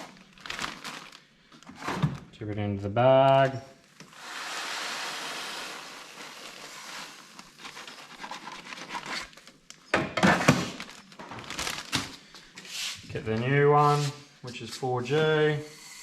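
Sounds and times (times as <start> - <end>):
plastic bag crinkling: 0.0 - 1.8, 10.7 - 12.4
grain rustling: 4.2 - 8.2.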